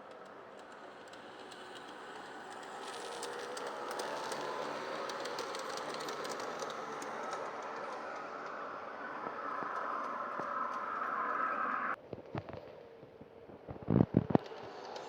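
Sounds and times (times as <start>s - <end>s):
model train running: 0.8s - 8.8s.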